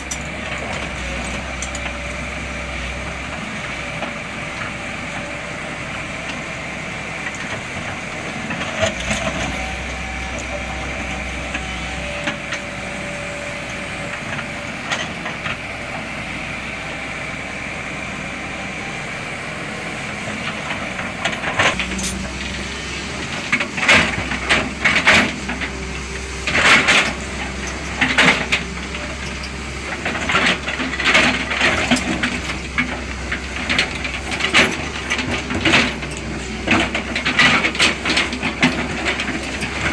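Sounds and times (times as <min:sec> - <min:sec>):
hydraulic excavator running: 0:00.0 - 0:39.9.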